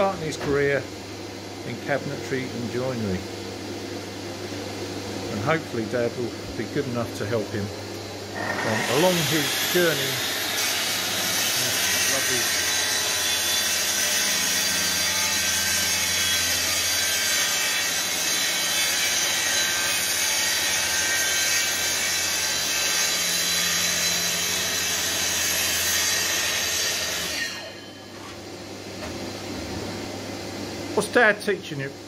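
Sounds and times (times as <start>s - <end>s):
saw motor winding down: 8.3s - 16.9s
circular saw cutting: 8.3s - 28.0s.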